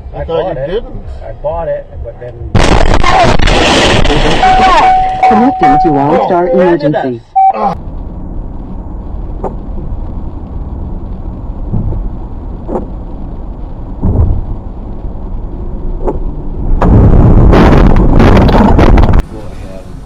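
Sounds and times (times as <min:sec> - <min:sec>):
car engine and road noise: 0:00.0 - 0:20.0
loud rushing noise: 0:07.8 - 0:20.0.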